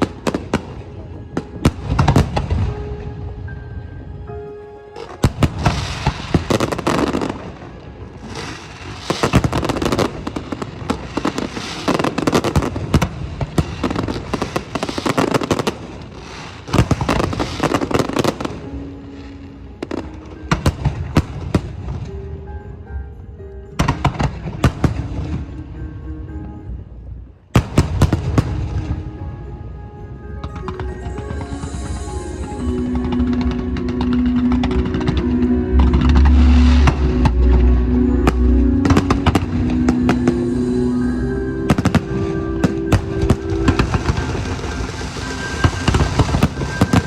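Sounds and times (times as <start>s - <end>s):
fireworks bangs and crackles: 0.0s - 3.0s, 5.0s - 22.1s, 23.8s - 25.5s, 27.6s - 29.0s, 32.4s - 40.6s, 41.6s - 47.0s
music with held notes: 0.0s - 47.0s.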